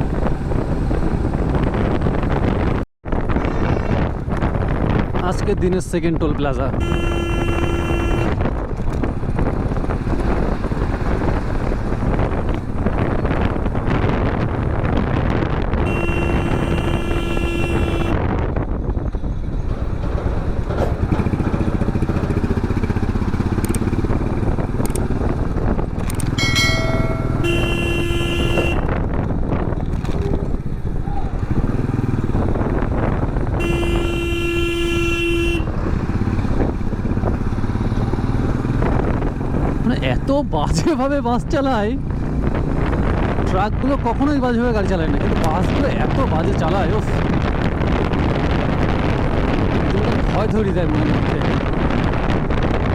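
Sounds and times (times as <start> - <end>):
motorcycle running and road noise: 0.0 - 52.9
wind rushing over microphone: 0.0 - 52.9
vehicle horn blast: 6.8 - 8.5, 15.8 - 18.2, 26.5 - 29.0, 33.5 - 35.7.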